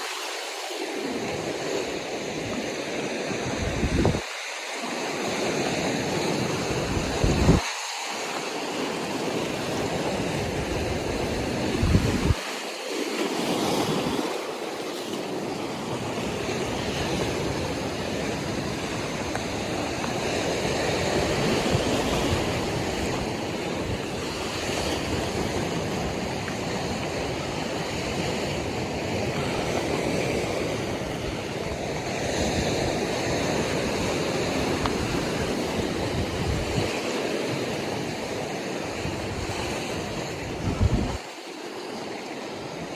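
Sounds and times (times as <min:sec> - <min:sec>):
ocean surf washing ashore: 0:00.0 - 0:42.9
wind buffeting microphone: 0:01.1 - 0:04.3, 0:05.2 - 0:07.7, 0:08.8 - 0:12.5, 0:15.5 - 0:41.3.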